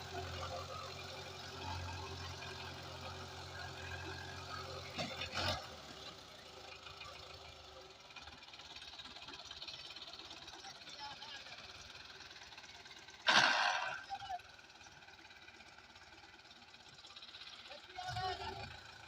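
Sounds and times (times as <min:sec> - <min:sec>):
diesel tractor engine running: 0:00.0 - 0:19.0
loud short clatter: 0:13.3 - 0:14.1.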